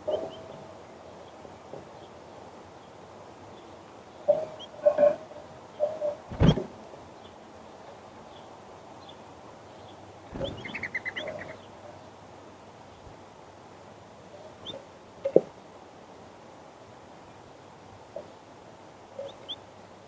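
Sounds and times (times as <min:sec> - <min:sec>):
small birds chirping: 0:08.3 - 0:11.8.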